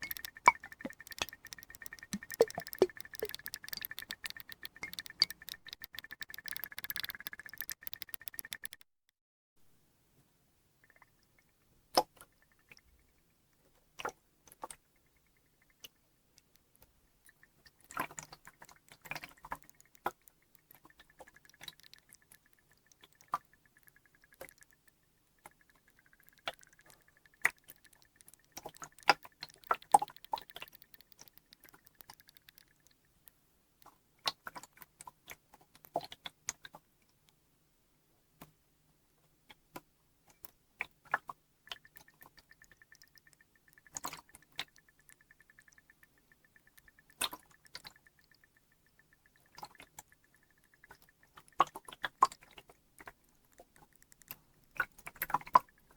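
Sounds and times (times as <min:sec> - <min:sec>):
faint high steady tone: 0:00.0 - 0:08.8
water drips and splashes: 0:00.0 - 0:08.8, 0:15.4 - 0:33.2, 0:40.4 - 0:55.9.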